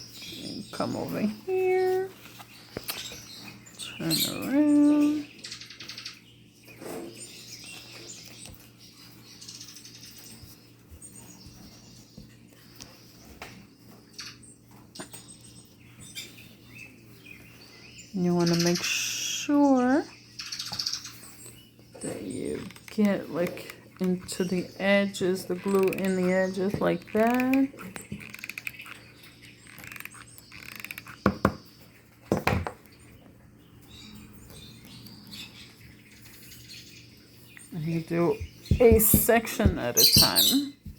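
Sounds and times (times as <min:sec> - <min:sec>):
birds chirping: 0:00.0 - 0:40.9
steady low hum: 0:33.5 - 0:40.9.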